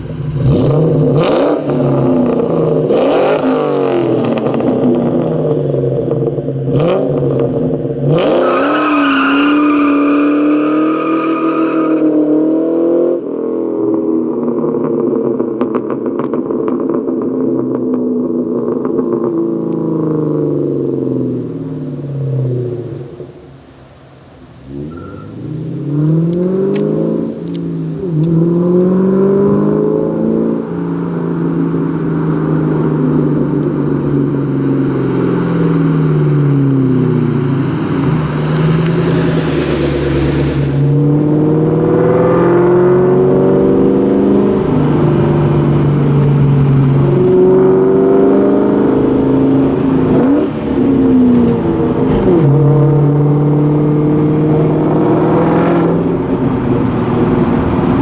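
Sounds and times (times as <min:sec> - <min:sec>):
car engine revving: 0:00.0 - 0:58.0
rushing hiss: 0:23.2 - 0:41.1.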